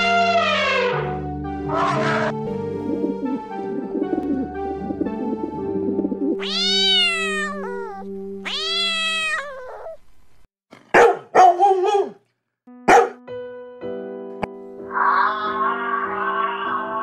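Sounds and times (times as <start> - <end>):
background music: 0.0 - 9.0, 12.7 - 17.0
cat meowing: 6.4 - 10.0, 14.9 - 17.0
dog barking: 10.9 - 12.2, 12.9 - 13.2.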